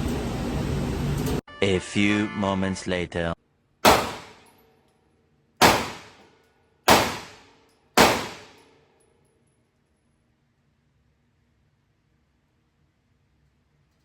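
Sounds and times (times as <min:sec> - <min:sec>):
gunshots with ringing echo: 0:03.8 - 0:04.5, 0:05.6 - 0:06.2, 0:06.9 - 0:08.6.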